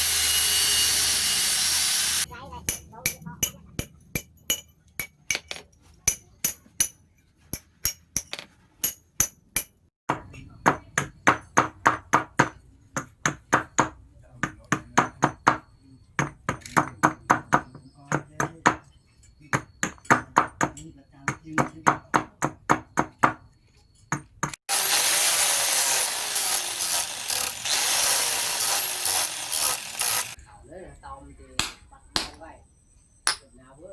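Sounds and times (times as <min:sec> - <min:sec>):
power tool grinding: 0:00.0 - 0:02.3, 0:24.7 - 0:30.4
hammer striking steel on anvil: 0:02.6 - 0:09.8, 0:31.6 - 0:32.4.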